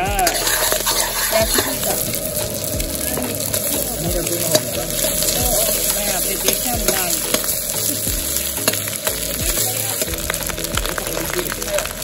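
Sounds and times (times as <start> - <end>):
rice sizzling in a wok: 0.0 - 12.0
ladle clicking against pan: 0.2 - 2.2.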